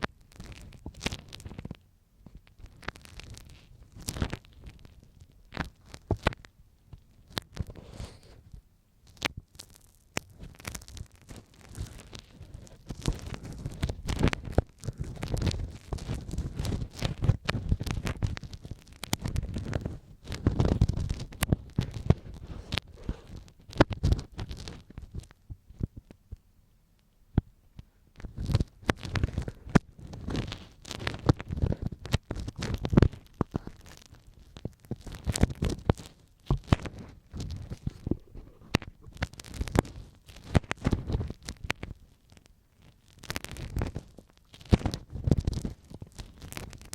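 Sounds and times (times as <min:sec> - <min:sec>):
crackling clicks: 0:00.0 - 0:46.9
ear pick scraping in ear: 0:07.5 - 0:08.5.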